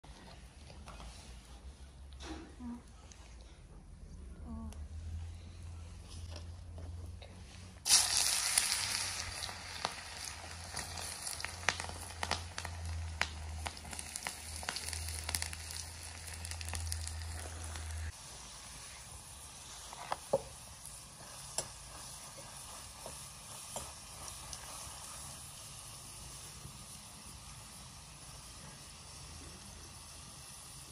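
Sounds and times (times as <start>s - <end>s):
vegetables sizzling in hot oil: 7.8s - 30.9s.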